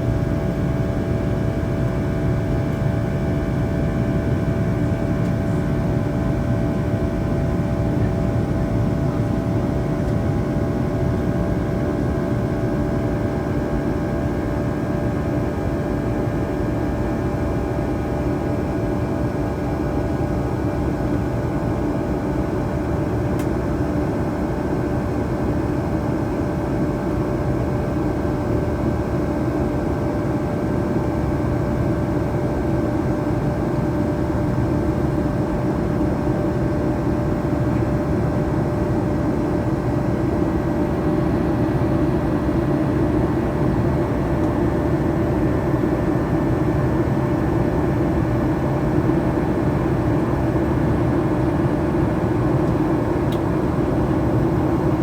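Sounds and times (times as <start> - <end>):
jet engine hum: 33.0 - 55.0.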